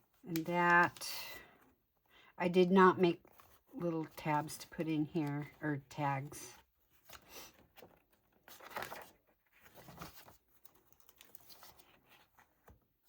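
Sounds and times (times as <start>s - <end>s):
paper pages rustling: 6.8s - 12.8s.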